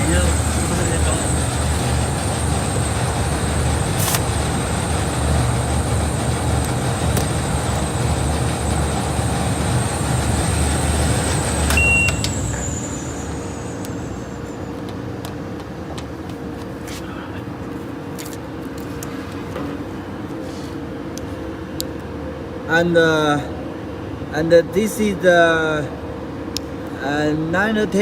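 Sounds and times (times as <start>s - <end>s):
tape machine running with whine: 0.0s - 15.2s
sharp machine clicks: 2.7s - 4.7s
short beep: 11.7s - 14.4s.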